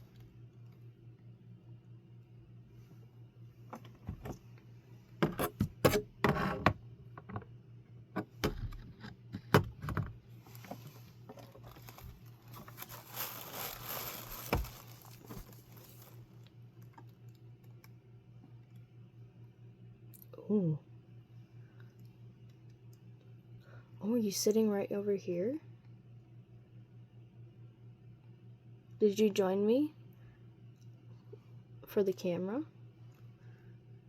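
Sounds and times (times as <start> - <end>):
steady low hum: 0.0 - 34.0
rustling: 10.4 - 16.3.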